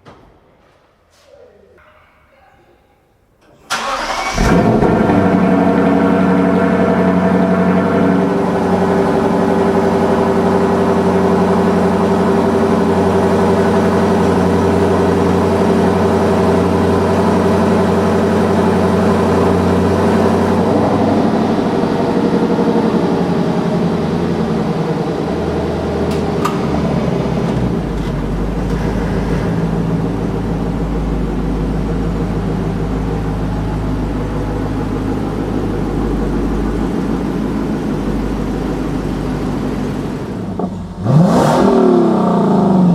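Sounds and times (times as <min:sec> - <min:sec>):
car engine idling: 0:03.7 - 0:42.9.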